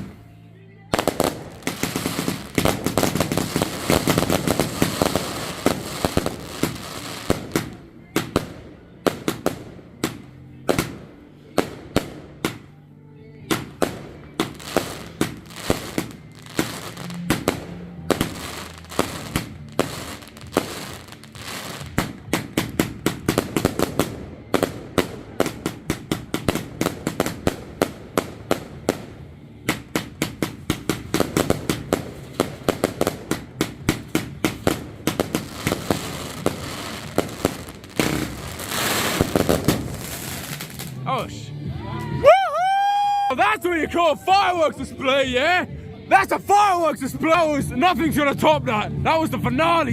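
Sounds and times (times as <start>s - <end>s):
firework bangs: 0.9s - 12.7s, 13.5s - 41.0s.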